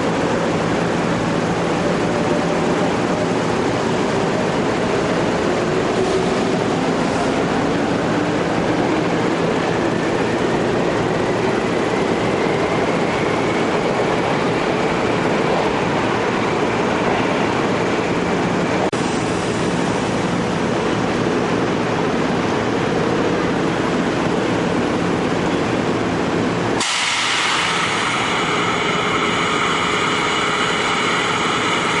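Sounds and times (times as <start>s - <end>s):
electric train running noise: 0.0s - 32.0s
steady high whines: 26.2s - 32.0s.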